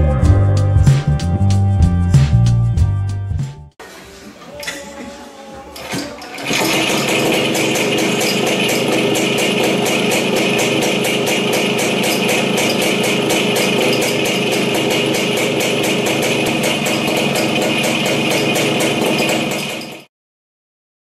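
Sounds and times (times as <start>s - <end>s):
two-stroke engine idling: 6.4s - 20.1s.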